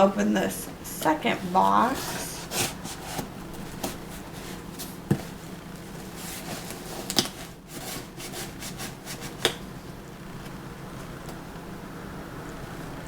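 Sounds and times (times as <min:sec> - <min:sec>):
cardboard box rubbing and scraping: 0:01.4 - 0:09.4.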